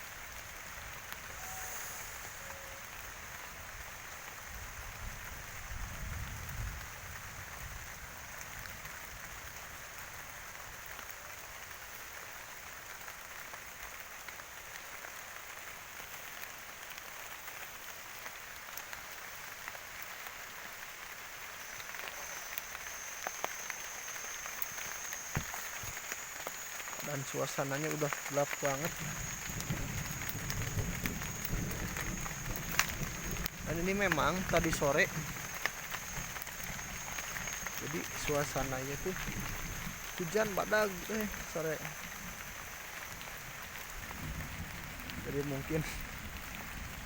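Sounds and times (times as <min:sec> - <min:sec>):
steady rain falling: 0:00.0 - 0:47.0
thin high chirring: 0:01.3 - 0:03.3.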